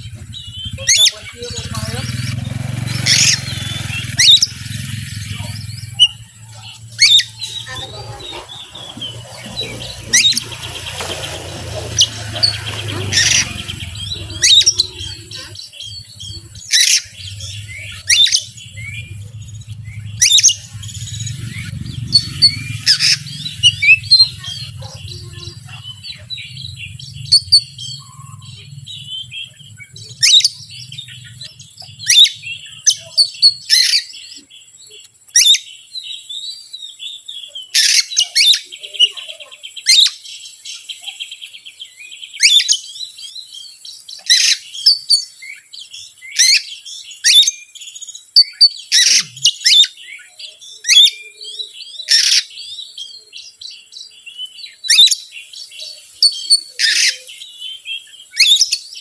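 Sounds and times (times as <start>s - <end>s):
rapid bird trill: 0.0s - 34.6s
bird whistles and call notes: 54.8s - 59.0s.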